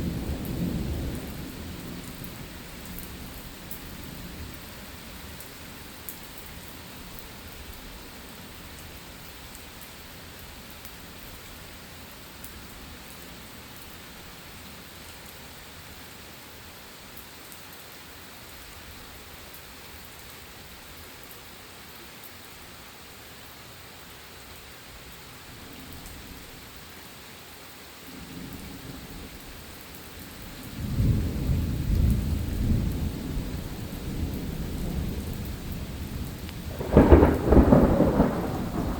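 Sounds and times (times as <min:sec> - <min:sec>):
thunder rumbling: 0:00.0 - 0:04.8, 0:30.4 - 0:38.9
steady rain falling: 0:00.0 - 0:38.9.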